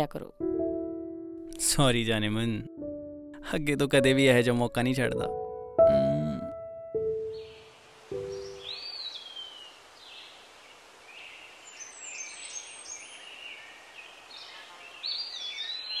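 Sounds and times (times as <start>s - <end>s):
birds chirping: 7.1s - 16.0s
steady background hiss: 7.2s - 16.0s.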